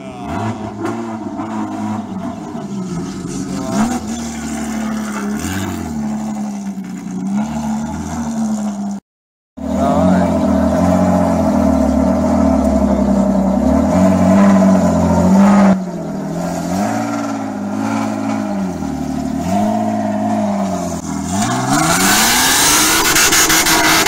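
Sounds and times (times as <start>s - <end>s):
tyres screeching: 0.0s - 8.3s
car engine revving: 0.0s - 9.0s, 9.6s - 24.0s.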